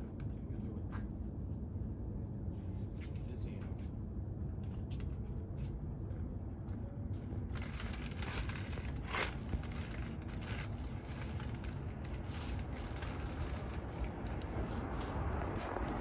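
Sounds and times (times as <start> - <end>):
distant jet airliner rumble: 0.0 - 16.0
ragged jet crackle: 7.5 - 16.0.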